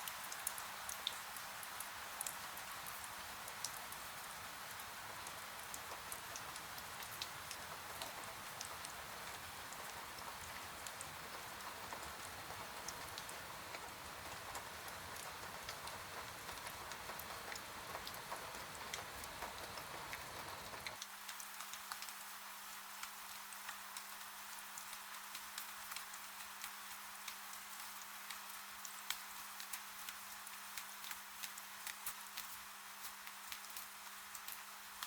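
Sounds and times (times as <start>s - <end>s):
steady rain hiss: 0.0s - 35.0s.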